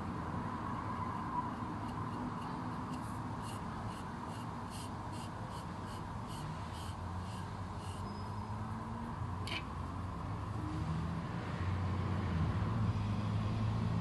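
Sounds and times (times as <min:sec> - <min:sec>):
steady background hum: 0:00.0 - 0:08.3
scratchy paint brush strokes: 0:01.0 - 0:08.1.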